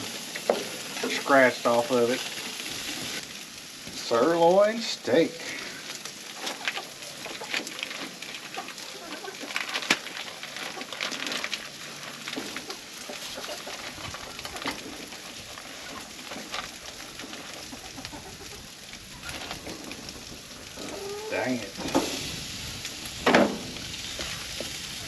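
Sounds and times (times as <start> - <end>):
steak sizzling with pops: 0.0 - 25.0
chickens clucking: 6.3 - 11.2, 11.8 - 22.0.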